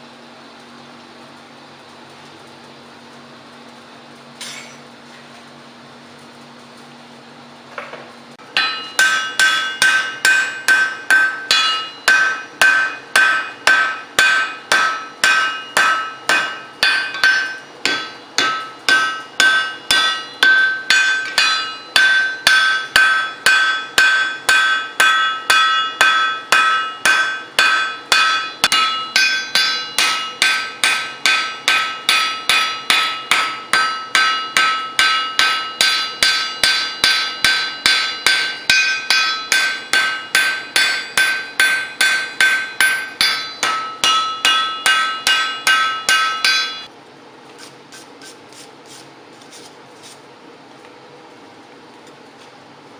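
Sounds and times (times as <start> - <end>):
hammer striking steel on anvil: 4.4 - 4.8, 7.8 - 46.9.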